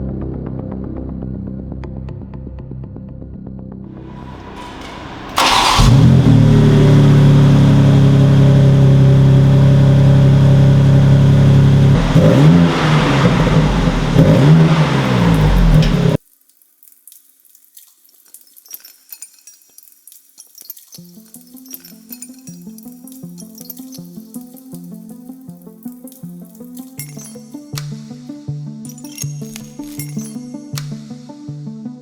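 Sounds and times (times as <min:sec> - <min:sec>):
car engine starting and revving: 0:04.0 - 0:16.2.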